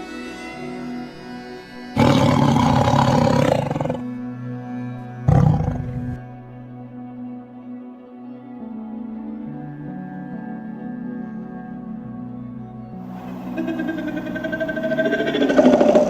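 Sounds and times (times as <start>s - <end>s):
soft background music: 0.0s - 16.0s
big cat roaring: 2.0s - 4.1s, 5.3s - 6.2s, 13.3s - 16.0s.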